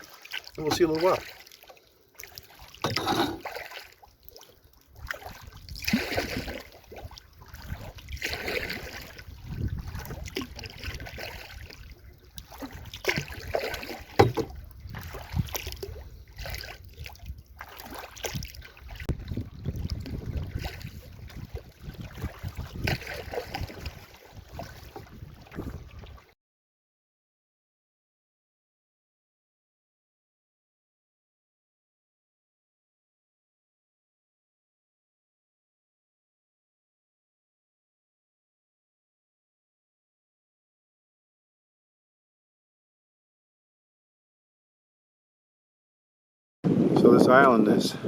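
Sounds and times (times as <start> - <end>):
paddle splashing in water: 0.0 - 26.4
wind rumble on microphone: 5.0 - 13.6, 14.2 - 26.3, 46.6 - 48.0.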